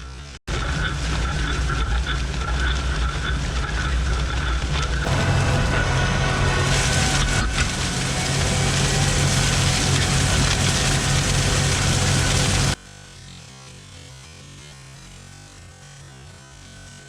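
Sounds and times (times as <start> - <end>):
loud rushing noise: 5.1 - 12.8
tractor engine hum: 5.1 - 12.8.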